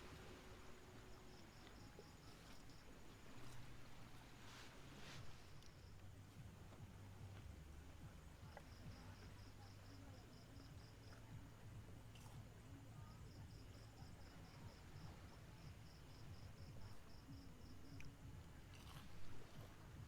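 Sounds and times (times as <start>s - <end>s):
cricket chirping: 0.0s - 19.9s
faint low steady rumble: 0.0s - 20.0s.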